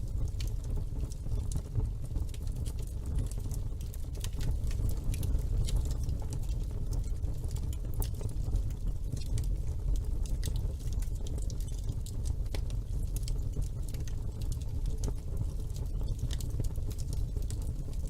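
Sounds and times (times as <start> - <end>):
fire rumbling: 0.0 - 18.0
logs crackling and popping: 0.0 - 18.0.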